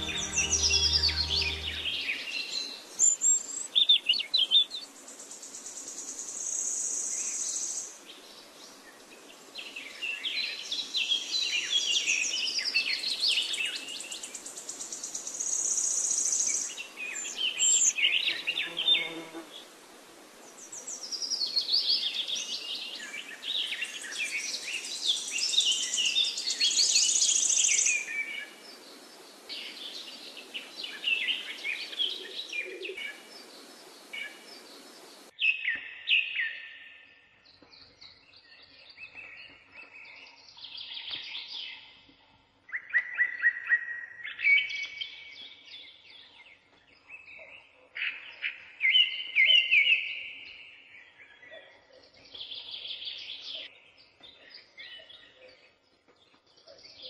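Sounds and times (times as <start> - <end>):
birds chirping and trilling: 0.0 - 4.9
steady hiss: 33.2 - 35.3.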